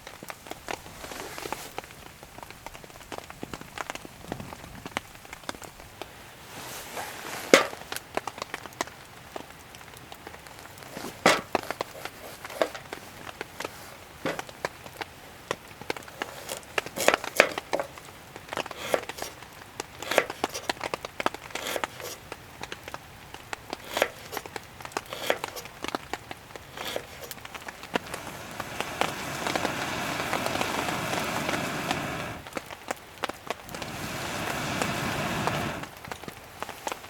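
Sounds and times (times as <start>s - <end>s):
wood fire crackling and popping: 0.0s - 37.0s
hiss: 6.4s - 7.8s, 18.6s - 19.4s, 20.0s - 20.8s, 21.5s - 22.2s, 23.8s - 24.5s, 25.1s - 25.7s, 26.7s - 32.5s, 33.6s - 36.1s.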